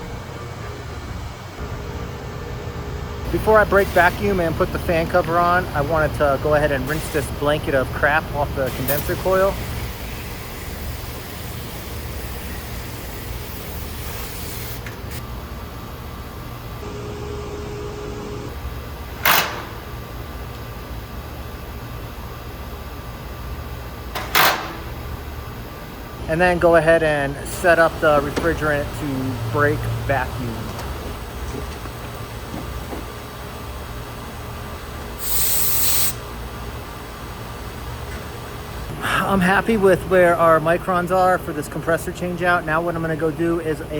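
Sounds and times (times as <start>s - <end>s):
low machine hum: 0.0s - 43.9s
refrigerant hissing: 3.3s - 15.2s, 35.1s - 36.4s
water hose spraying: 35.2s - 36.2s.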